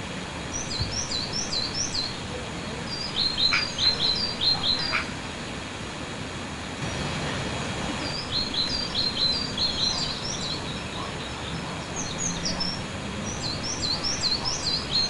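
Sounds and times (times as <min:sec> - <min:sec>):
outdoor background hiss: 0:00.0 - 0:15.0
small birds chirping: 0:00.4 - 0:05.3, 0:08.0 - 0:15.0.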